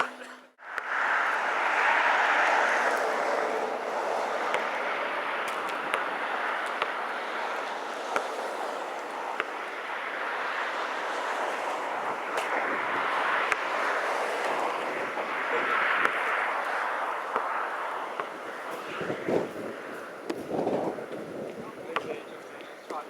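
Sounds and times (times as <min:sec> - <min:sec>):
rushing wind: 0:00.6 - 0:23.0.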